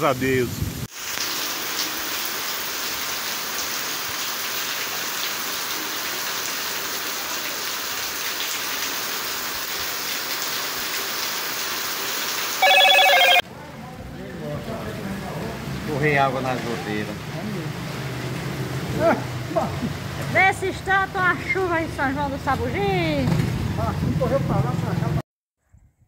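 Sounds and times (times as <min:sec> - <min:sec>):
steady rain falling: 0:00.0 - 0:20.3.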